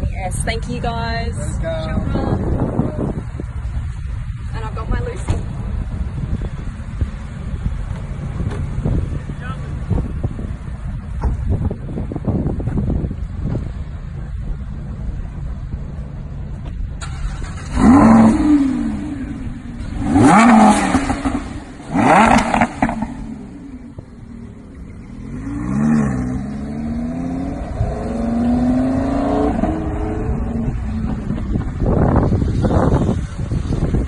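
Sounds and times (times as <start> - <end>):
sports car engine revving: 17.0 - 34.0.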